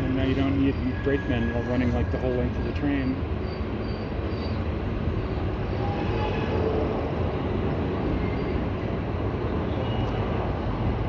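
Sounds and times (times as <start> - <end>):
faint high wheel squeals: 0.0 - 6.7
train wheels rumbling on rails: 0.0 - 11.0.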